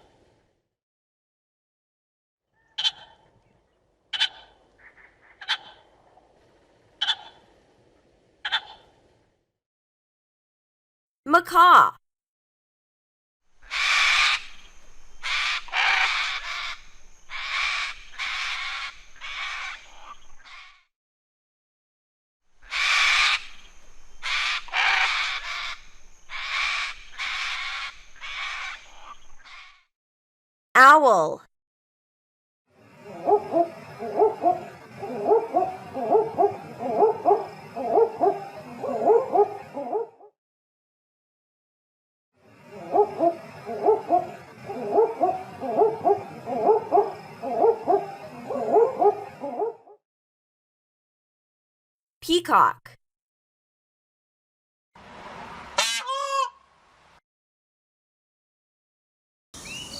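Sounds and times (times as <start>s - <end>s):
macaw squawking: 2.6s - 3.2s, 4.1s - 5.8s, 13.6s - 14.6s, 15.2s - 20.8s, 22.6s - 23.6s, 24.2s - 29.8s, 55.8s - 56.6s
owl hooting: 15.2s - 19.8s, 32.8s - 40.3s, 42.5s - 50.0s, 55.8s - 56.5s.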